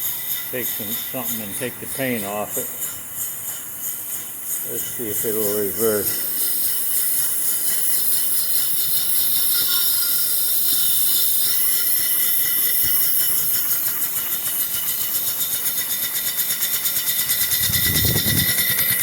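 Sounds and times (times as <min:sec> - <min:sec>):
steam engine exhaust chuffs: 0:00.0 - 0:19.0
steam hissing: 0:00.0 - 0:19.0.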